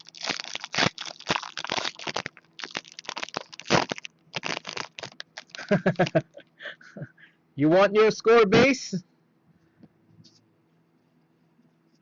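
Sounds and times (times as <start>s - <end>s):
wrapper crinkling and tearing: 0.0s - 6.2s.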